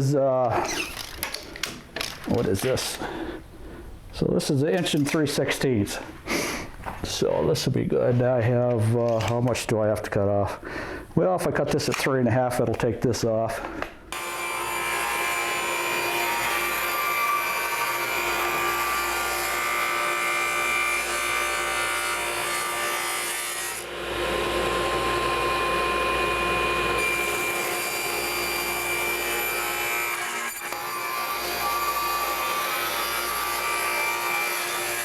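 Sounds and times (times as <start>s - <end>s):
power saw cutting wood: 14.1s - 35.0s.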